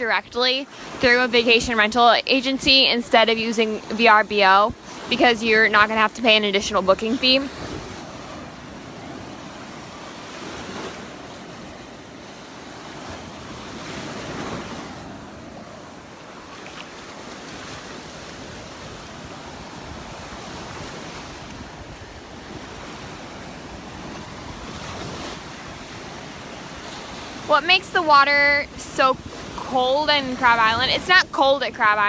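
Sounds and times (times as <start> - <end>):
surf washing ashore: 0.0 - 32.0
wind buffeting microphone: 1.0 - 16.6.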